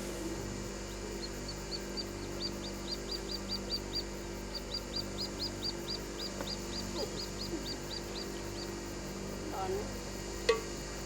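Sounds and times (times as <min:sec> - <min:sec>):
bird chirping: 0:01.2 - 0:08.8.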